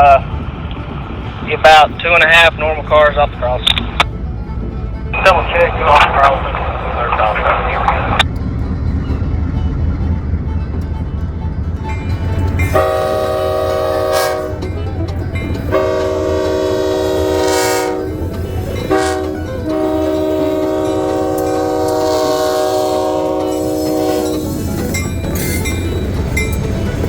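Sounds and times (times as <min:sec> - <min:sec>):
diesel engine rumble: 0:00.0 - 0:27.0
locomotive air horn blasts: 0:12.2 - 0:15.0, 0:15.6 - 0:24.8.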